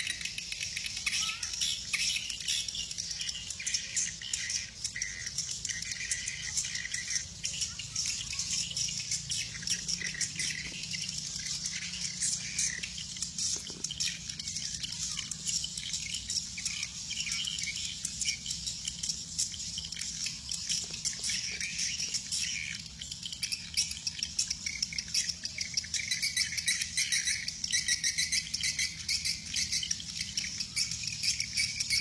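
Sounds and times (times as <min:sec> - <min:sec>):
birds twittering and chirping: 0:00.0 - 0:32.0.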